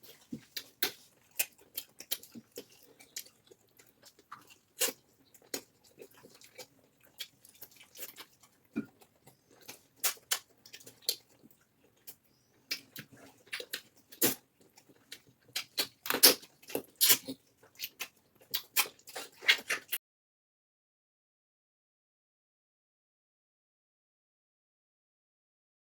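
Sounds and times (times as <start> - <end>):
people chewing with lip smacks: 0.0 - 20.0.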